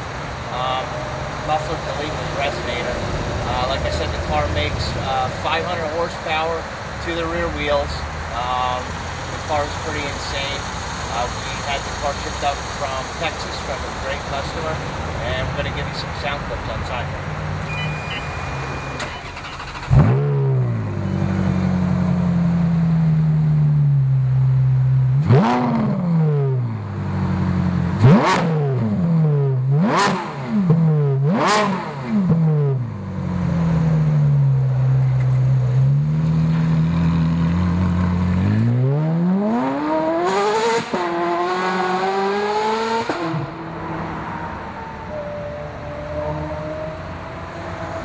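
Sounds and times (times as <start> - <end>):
car engine idling: 0.0 - 25.2
car engine revving: 0.0 - 48.0
car engine starting: 0.0 - 48.0.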